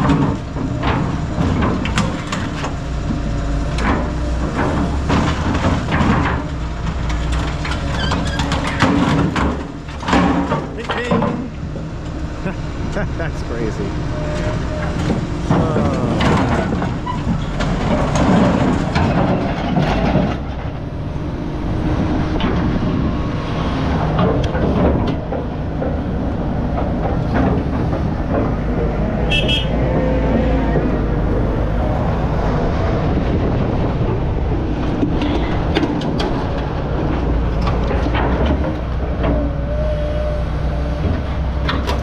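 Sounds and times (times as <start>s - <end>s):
scrap metal clanking and creaking: 0.0s - 21.0s, 23.9s - 31.2s, 33.6s - 39.6s
heavy diesel machinery running: 0.0s - 42.0s.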